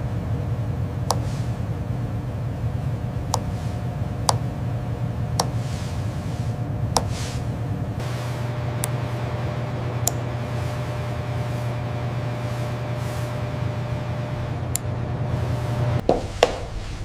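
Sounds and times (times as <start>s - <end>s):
steady low hum: 0.0s - 17.0s
sharp clicks: 8.0s - 14.9s.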